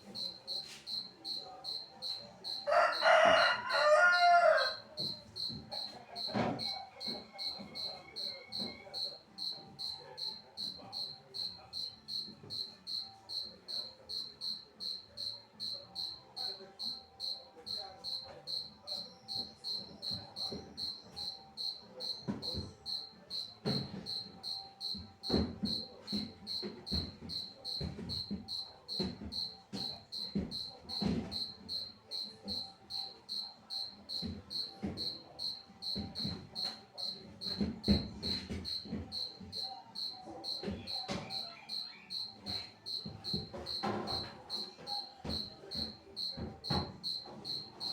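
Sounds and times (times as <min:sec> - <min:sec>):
cricket chirping: 0:00.0 - 0:03.0, 0:04.7 - 0:47.9.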